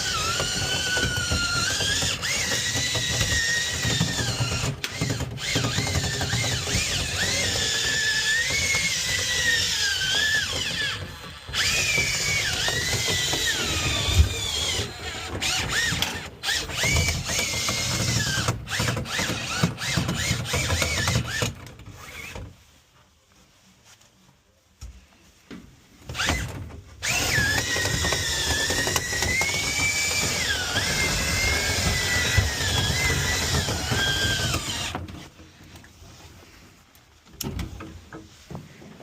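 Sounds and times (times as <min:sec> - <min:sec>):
power drill whining with rattling: 0:00.0 - 0:22.6, 0:26.0 - 0:36.6.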